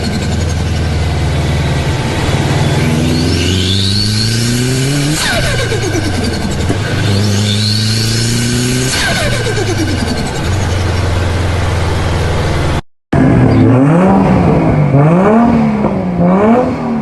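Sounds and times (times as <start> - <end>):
car engine revving: 0.0 - 17.0
turbo whistle: 2.5 - 10.6.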